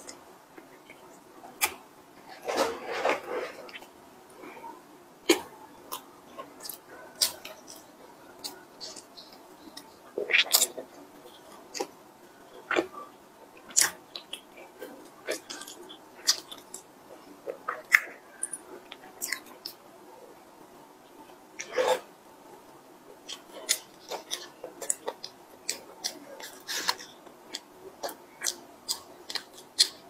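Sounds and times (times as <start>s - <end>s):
chewing: 5.2s - 12.0s, 12.6s - 19.8s, 23.2s - 30.0s.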